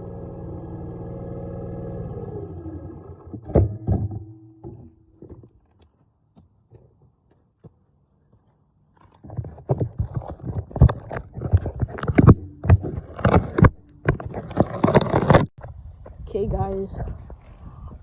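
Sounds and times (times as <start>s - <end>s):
loud knocks: 3.4s - 5.5s.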